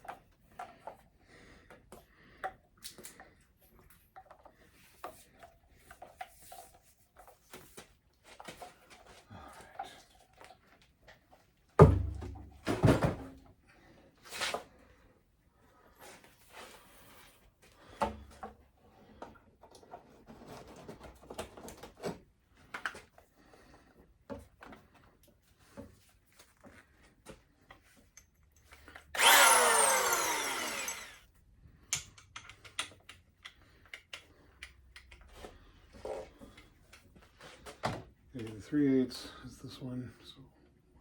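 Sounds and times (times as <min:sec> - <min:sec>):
power drill running: 0:29.2 - 0:31.3
tools clicking and knocking: 0:31.9 - 0:35.2.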